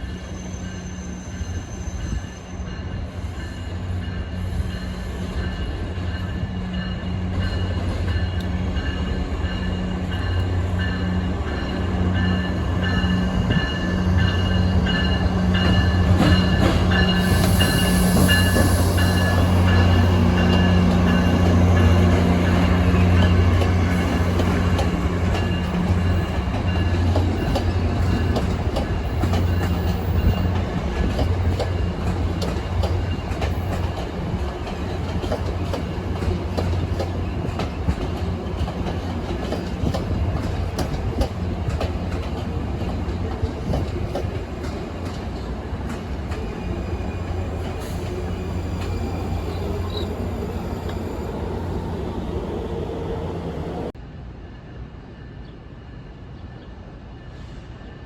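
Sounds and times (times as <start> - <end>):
train wheels clicking on rails: 2.8 - 53.9.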